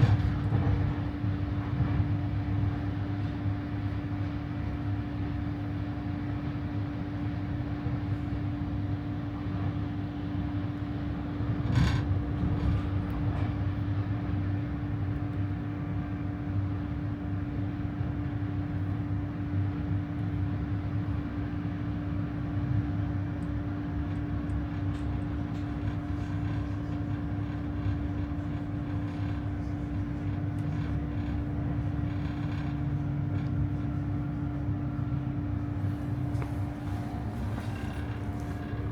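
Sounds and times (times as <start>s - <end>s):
train rolling rumble: 0.0s - 38.9s
electrical hum: 25.2s - 38.9s.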